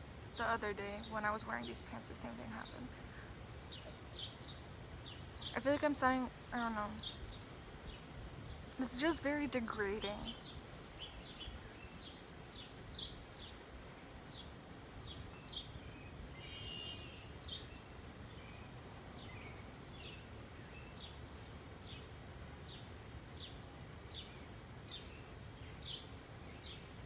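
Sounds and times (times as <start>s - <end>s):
small bird chirping: 3.7s - 13.7s
longer bird call: 14.4s - 20.2s.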